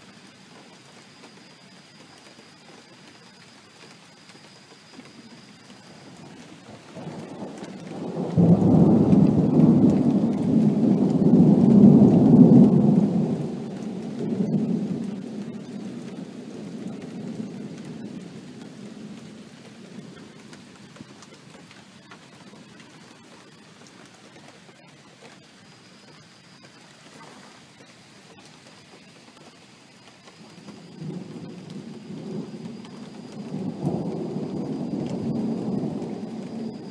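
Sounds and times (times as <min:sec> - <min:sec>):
steady rain: 0:00.0 - 0:36.9
rolling thunder: 0:06.2 - 0:21.2, 0:30.7 - 0:36.9.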